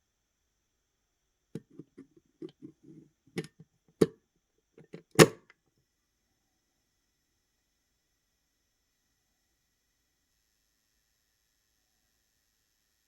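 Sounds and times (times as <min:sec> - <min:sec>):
object handling knocks and rubbing: 0:01.6 - 0:03.6, 0:04.8 - 0:05.4.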